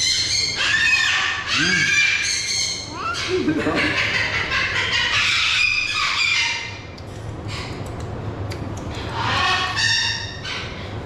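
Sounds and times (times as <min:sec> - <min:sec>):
steady low hum: 0:00.0 - 0:11.0
cockatoo screeching: 0:00.4 - 0:06.8.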